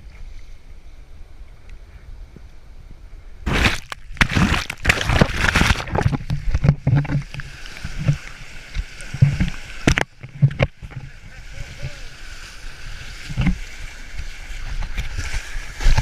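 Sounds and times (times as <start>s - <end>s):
water splashing and sloshing: 3.5s - 16.0s.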